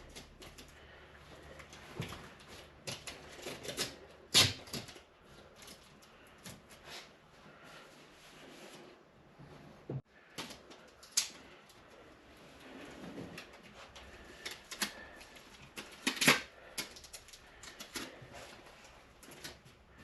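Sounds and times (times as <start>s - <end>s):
clicks and crackles of duct handling: 0.0s - 6.8s, 10.2s - 12.0s, 13.2s - 20.0s.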